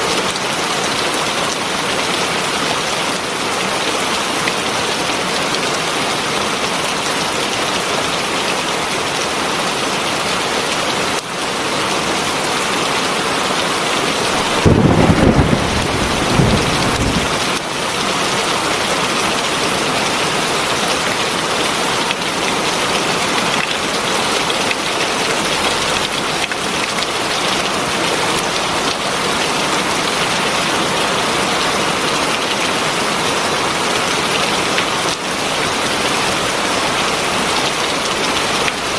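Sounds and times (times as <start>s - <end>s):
heavy rain falling: 0.0s - 38.9s
thunder rumbling: 14.3s - 17.6s.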